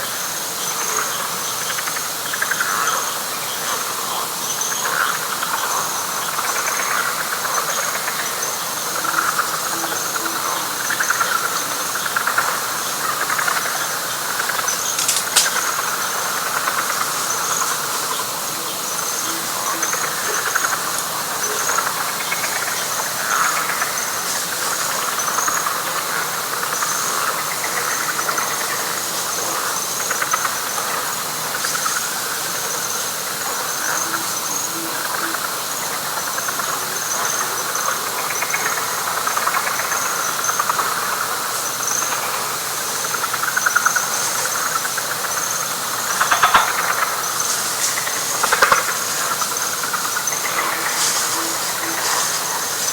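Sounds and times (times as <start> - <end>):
high rapid insect trill: 0.0 - 52.9
pulsing frog chorus: 0.0 - 52.9
sharp click: 14.9 - 15.7.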